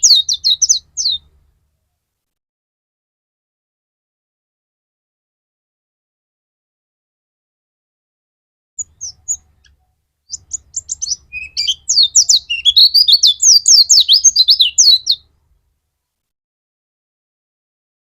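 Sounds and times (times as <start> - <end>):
bird warbling song: 0.0 - 1.4, 8.8 - 15.3.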